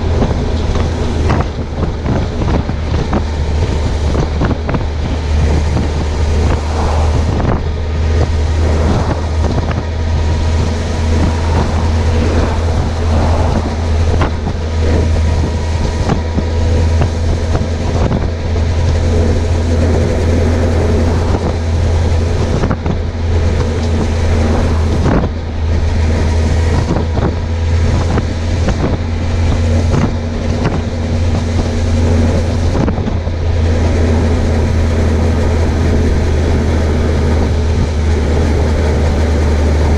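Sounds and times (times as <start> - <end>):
motorcycle engine cruising: 0.0 - 39.9
wind rushing over microphone: 0.0 - 39.9.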